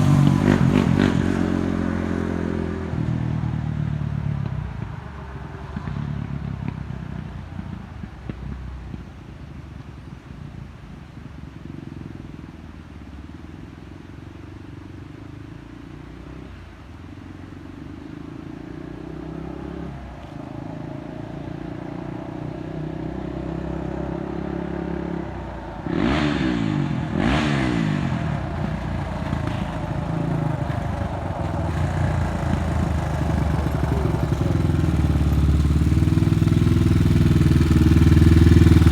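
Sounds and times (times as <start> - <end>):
quad bike engine revving: 0.0 - 4.6, 20.6 - 38.9.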